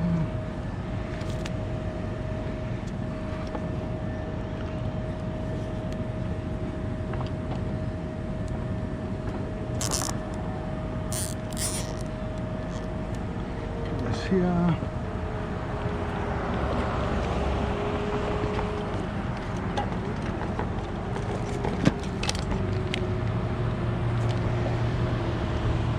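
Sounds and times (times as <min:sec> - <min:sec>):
short hissing or clicking: 0:11.1 - 0:12.0.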